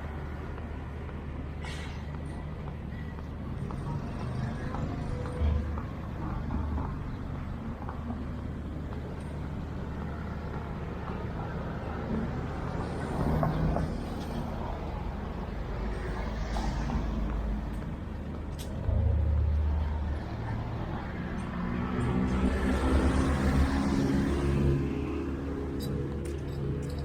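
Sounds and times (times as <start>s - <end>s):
traffic engines rumbling: 0.0s - 27.0s
loud vehicle passing: 18.8s - 26.2s.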